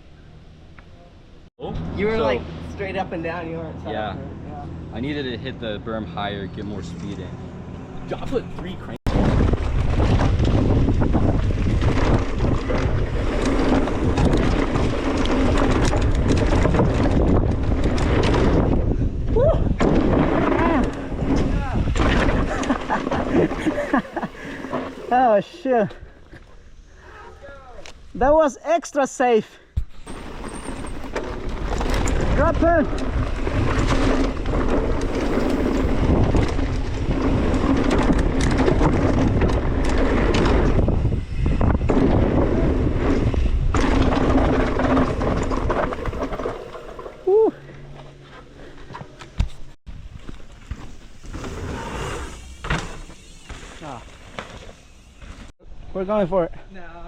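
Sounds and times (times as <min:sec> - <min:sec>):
bike tyre noise: 0:08.4 - 0:28.1, 0:29.8 - 0:55.5
bike clicks and rattles: 0:08.6 - 0:25.1, 0:29.8 - 0:55.5
wind buffeting microphone: 0:09.0 - 0:24.6, 0:30.2 - 0:46.4.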